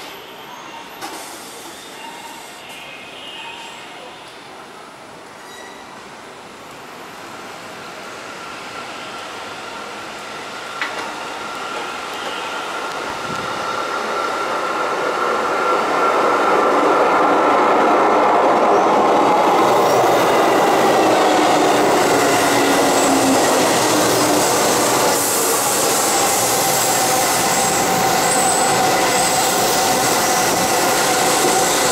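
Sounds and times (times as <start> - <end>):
wheel squeal: 5.4 - 6.0
electric train approaching: 6.3 - 31.9.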